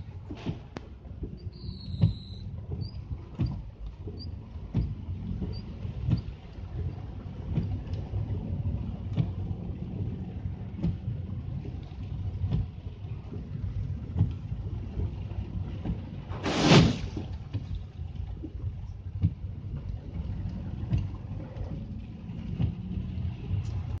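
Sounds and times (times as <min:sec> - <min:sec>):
wind rumble on microphone: 0:00.0 - 0:24.0
tyres hissing through water: 0:16.3 - 0:17.2.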